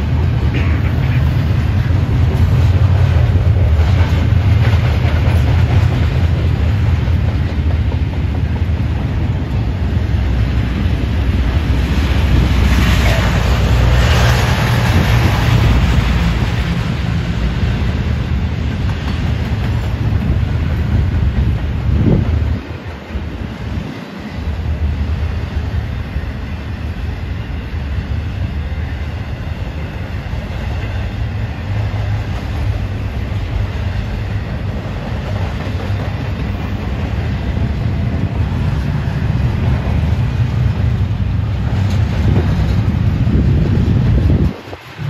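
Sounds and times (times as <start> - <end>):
rail cars rumbling past: 0.0 - 45.0.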